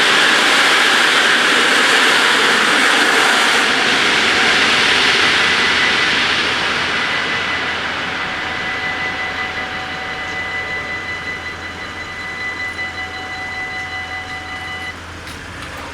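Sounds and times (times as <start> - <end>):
crossing warning bells ringing: 0.0 - 15.9
electric train rushing past: 0.0 - 15.9.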